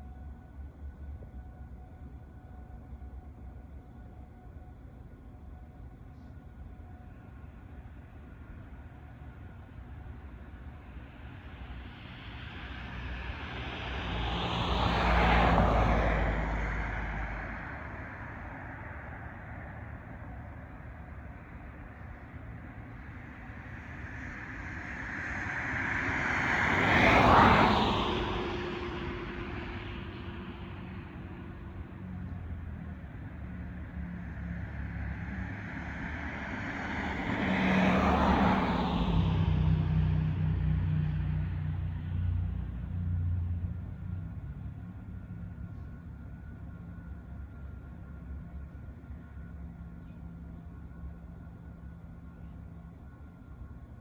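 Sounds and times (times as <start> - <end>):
vehicle passing by: 12.6 - 18.4, 23.6 - 31.1, 34.0 - 44.6.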